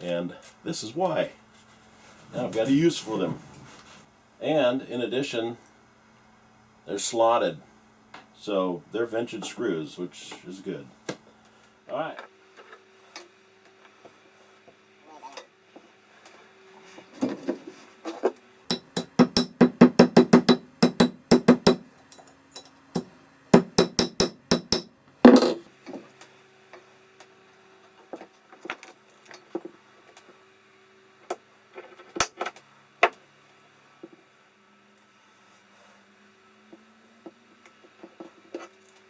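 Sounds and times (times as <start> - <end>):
small hammer tapping on wood: 18.7 - 21.9, 23.0 - 25.6.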